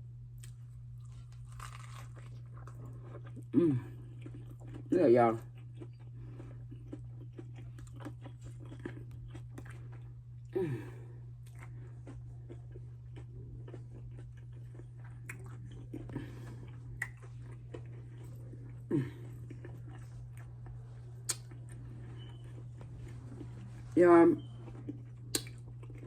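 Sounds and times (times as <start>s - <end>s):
steady low hum: 0.0s - 26.0s
chewing and crunching food: 0.3s - 26.0s
wet mouth clicks and smacks: 21.2s - 21.6s, 25.3s - 25.6s.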